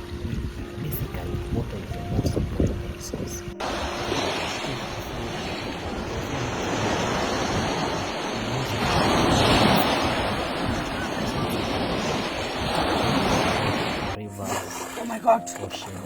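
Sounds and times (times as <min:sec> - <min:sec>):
ocean waves rushing: 0:03.6 - 0:16.0.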